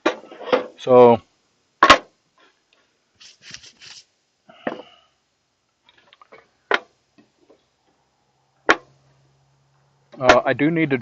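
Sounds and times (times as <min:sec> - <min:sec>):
sharp knocks of wooden pieces: 0:01.8 - 0:02.1
soft rustling: 0:02.4 - 0:04.1.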